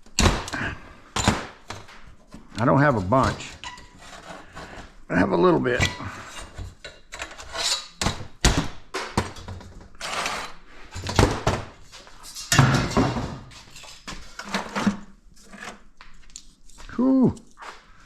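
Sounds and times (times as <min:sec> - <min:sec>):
metal knocks and thunks: 0:12.5 - 0:13.6.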